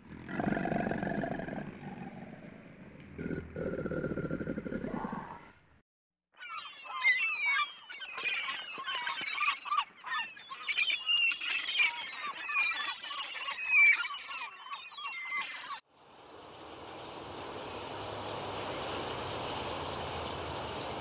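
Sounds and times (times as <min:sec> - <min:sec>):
gulls calling: 0:16.2 - 0:21.0.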